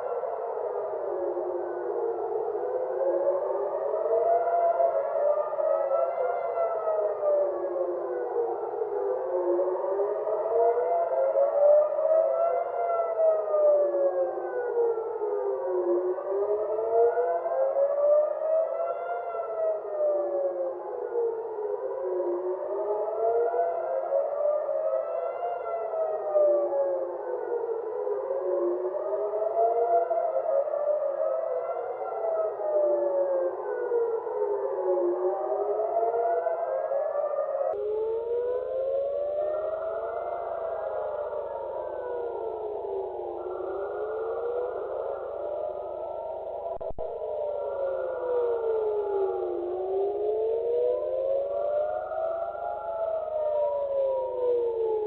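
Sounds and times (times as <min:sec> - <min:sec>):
air-raid sirens wailing: 0:00.0 - 0:55.0.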